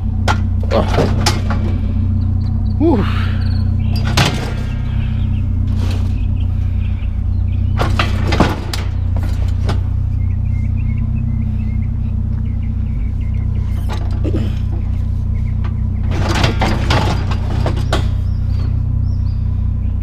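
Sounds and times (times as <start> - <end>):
vehicle engine idling: 0.0 - 20.0
scrap metal knocks and clanks: 0.2 - 2.3, 3.9 - 6.4, 7.6 - 10.0, 13.7 - 18.8.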